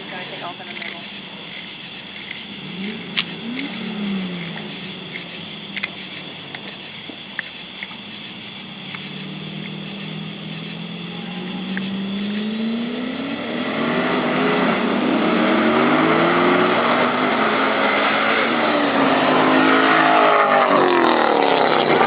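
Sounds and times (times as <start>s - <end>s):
engines accelerating hard: 0.0s - 22.0s.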